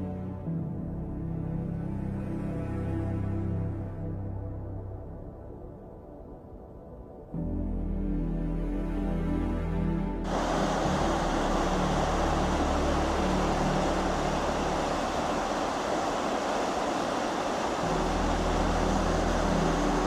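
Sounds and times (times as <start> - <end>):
background music: 0.0 - 20.0
waterfall roaring: 10.3 - 20.0.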